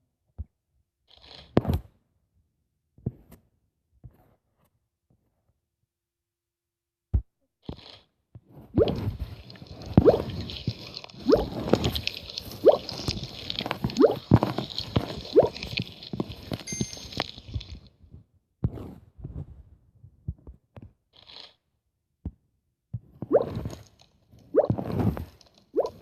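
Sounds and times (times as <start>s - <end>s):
slime squelching by hand: 8.7s - 17.9s.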